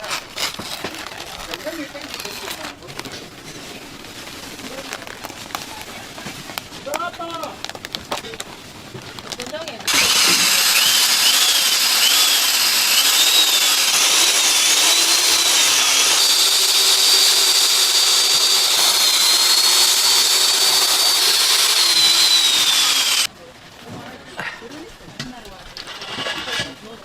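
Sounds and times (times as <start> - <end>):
motorized machine whining: 9.9 - 23.3.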